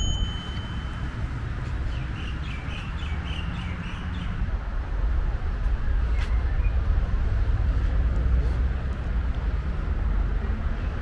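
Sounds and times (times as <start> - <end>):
bell sound effect: 0.0 - 1.5.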